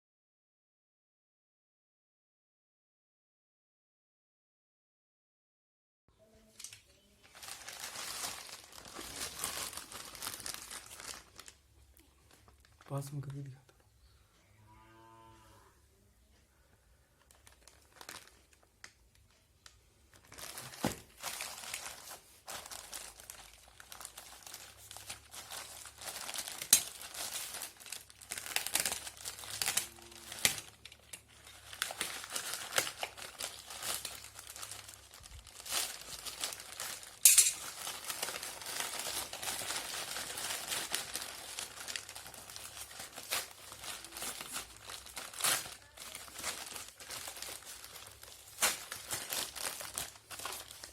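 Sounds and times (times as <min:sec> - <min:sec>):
packaging crinkling and tearing: 0:06.5 - 0:13.5, 0:17.2 - 0:19.0, 0:20.1 - 0:50.9.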